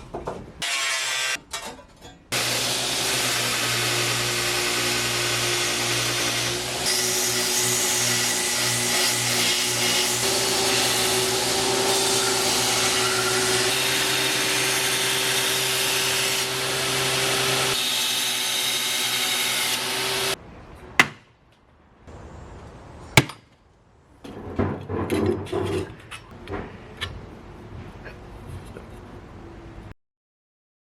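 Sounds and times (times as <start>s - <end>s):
power grinder grinding metal: 2.3s - 20.4s.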